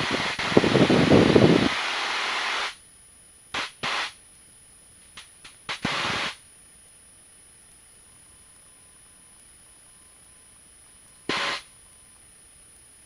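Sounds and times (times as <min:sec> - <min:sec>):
aircraft cabin noise hiss: 0:00.0 - 0:02.9, 0:03.5 - 0:04.3, 0:04.9 - 0:06.5, 0:09.3 - 0:13.0.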